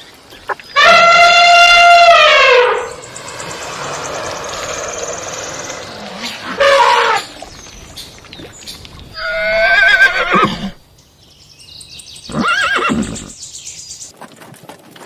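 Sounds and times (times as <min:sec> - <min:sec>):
horse whinnying: 0:09.2 - 0:10.8, 0:12.3 - 0:13.4.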